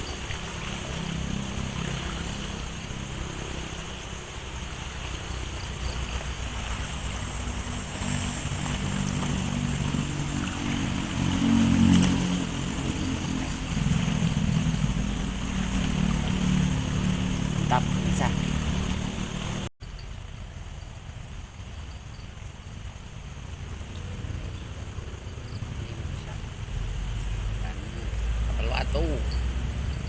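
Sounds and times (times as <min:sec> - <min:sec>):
vehicle engine passing: 0:00.0 - 0:19.7
river flowing: 0:00.0 - 0:30.0.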